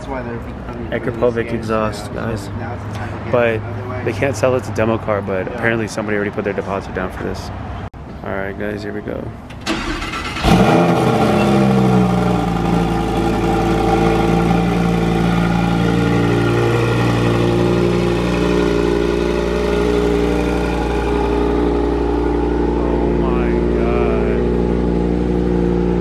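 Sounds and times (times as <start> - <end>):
car engine idling loudly: 10.4 - 26.0.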